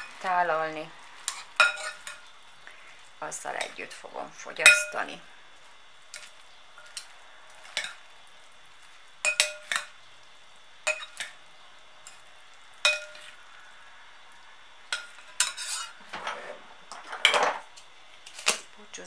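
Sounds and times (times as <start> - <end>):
faint steady hiss: 0.0 - 19.0
utensils clinking against dish: 15.0 - 17.7.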